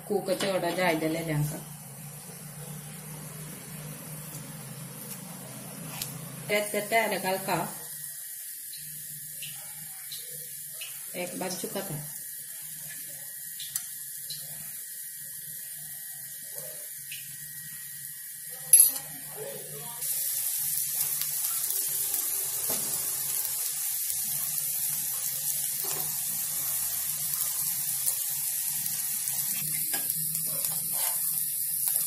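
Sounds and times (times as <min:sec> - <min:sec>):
patties sizzling in oil: 0:00.0 - 0:32.0
spatula turning patties: 0:02.2 - 0:07.3, 0:20.0 - 0:32.0.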